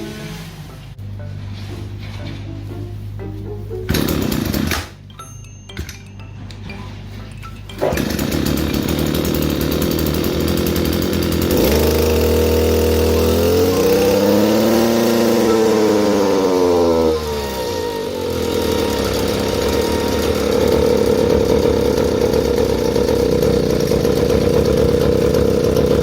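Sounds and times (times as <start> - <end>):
brush cutter engine revving: 3.9 - 5.0, 7.8 - 26.0.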